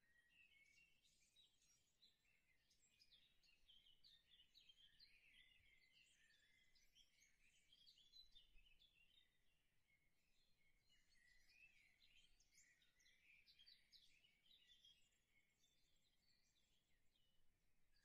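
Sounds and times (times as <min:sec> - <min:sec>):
faint birdsong chirping: 0:00.0 - 0:18.0.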